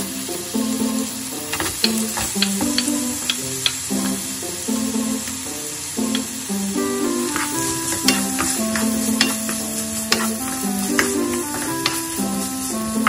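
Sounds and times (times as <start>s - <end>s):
background music: 0.0s - 13.0s
vegetables sizzling in oil: 0.0s - 13.0s
spatula knocking and scraping pan: 1.5s - 4.2s, 6.1s - 13.0s.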